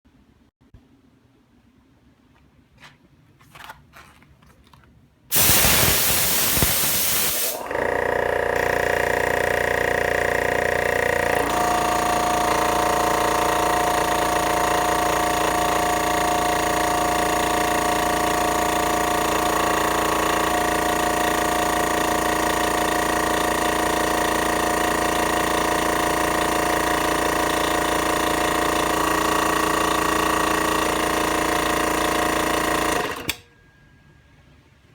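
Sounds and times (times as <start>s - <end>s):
loud air hiss: 5.3s - 7.7s
air compressor humming: 5.3s - 33.4s.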